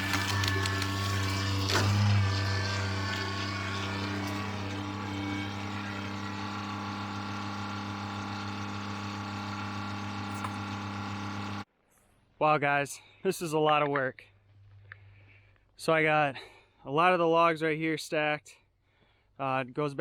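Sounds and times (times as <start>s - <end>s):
tractor diesel engine running: 0.0s - 11.6s.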